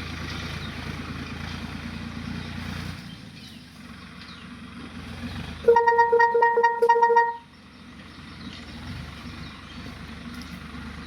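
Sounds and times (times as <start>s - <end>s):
tractor diesel engine running: 0.0s - 11.0s
horn honking: 5.6s - 7.5s.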